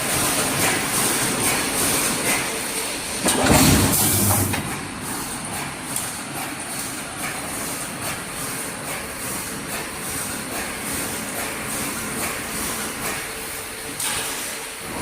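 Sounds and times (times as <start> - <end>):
welding machine clacking: 0.0 - 14.4
deep mechanical clunk: 3.2 - 5.0.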